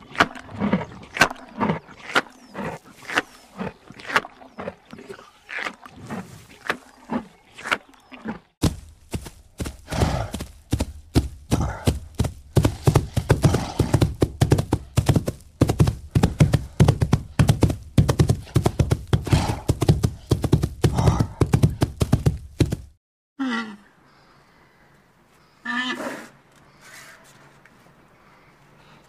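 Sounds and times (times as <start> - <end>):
rhinoceros cropping dry grass: 0.0 - 4.7, 5.5 - 21.8.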